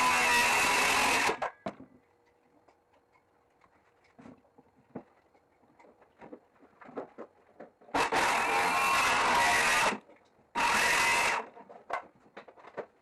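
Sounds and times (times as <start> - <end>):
jigsaw cutting panel: 10.6 - 11.5.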